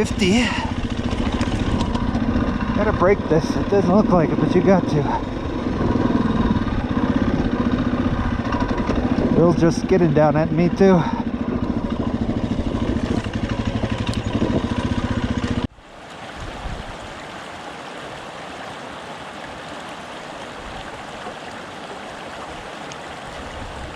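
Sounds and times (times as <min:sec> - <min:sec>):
dirt bike engine running: 0:00.0 - 0:15.7.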